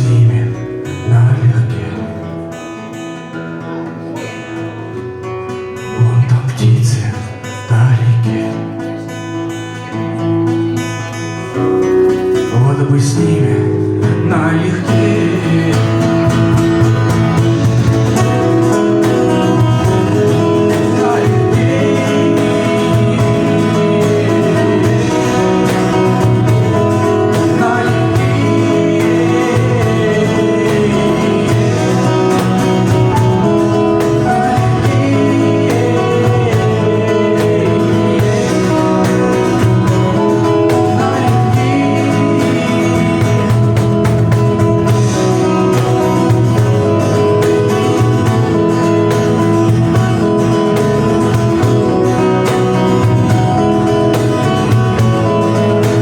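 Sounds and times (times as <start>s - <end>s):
live acoustic band music: 0.0s - 56.0s
strummed acoustic guitar: 0.0s - 56.0s.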